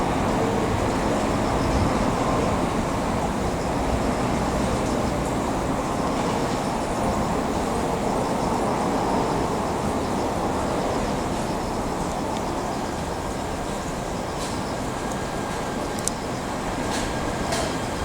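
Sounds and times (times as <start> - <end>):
slow-moving train rumbling: 0.0 - 18.0.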